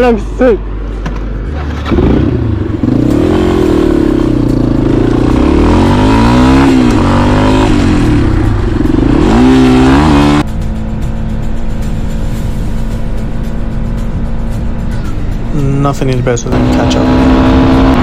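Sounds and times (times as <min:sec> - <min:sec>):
motorcycle engine revving: 0:01.4 - 0:10.5, 0:16.4 - 0:18.0.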